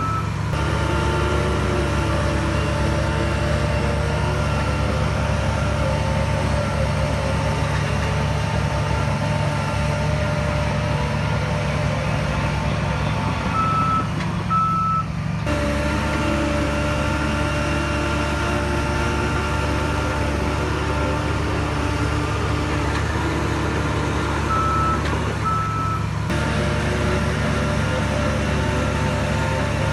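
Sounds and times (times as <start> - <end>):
reversing alarm beeping: 0.0 - 0.3, 13.5 - 15.1, 24.5 - 26.1
heavy diesel machinery running: 0.0 - 29.9.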